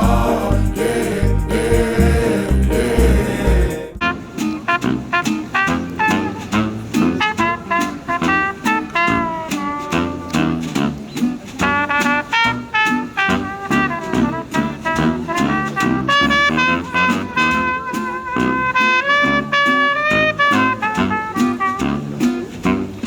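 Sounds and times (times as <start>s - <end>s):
steady beat: 0.0s - 5.2s
horn lines: 0.0s - 23.0s.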